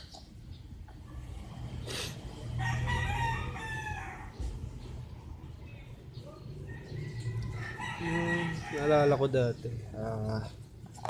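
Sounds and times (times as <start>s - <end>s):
rooster crowing: 2.5s - 4.4s, 6.7s - 9.2s.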